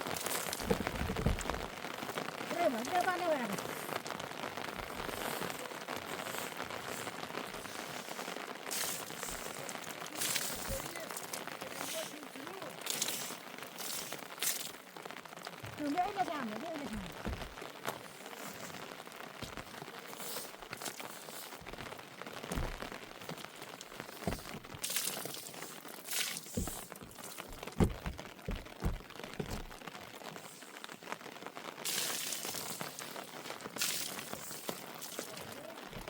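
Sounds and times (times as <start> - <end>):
rain falling: 0.0 - 36.0
knocks and crackles: 0.2 - 2.1, 16.9 - 17.9, 21.6 - 24.9, 26.5 - 30.0, 35.8 - 36.0.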